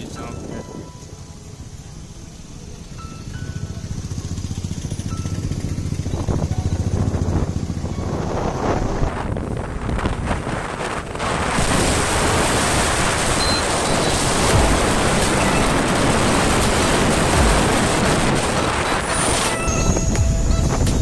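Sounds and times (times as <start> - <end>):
wind noise on microphone: 5.3 - 21.0
low buffeting thumps: 14.0 - 19.1, 19.9 - 21.0.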